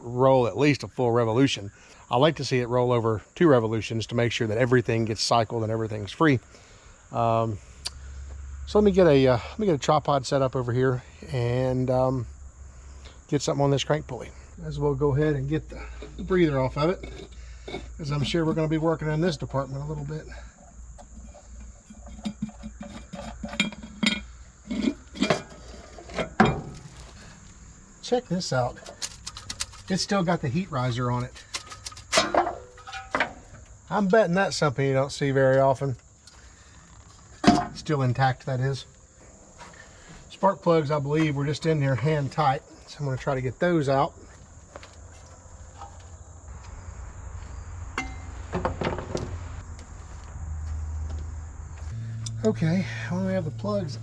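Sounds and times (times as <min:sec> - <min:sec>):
hand tools clinking on metal: 0:15.8 - 0:18.8, 0:28.7 - 0:30.1, 0:31.0 - 0:33.4
metal clinking and clunking: 0:15.9 - 0:18.8, 0:20.6 - 0:27.1, 0:28.7 - 0:30.1, 0:31.1 - 0:33.7, 0:48.0 - 0:49.4.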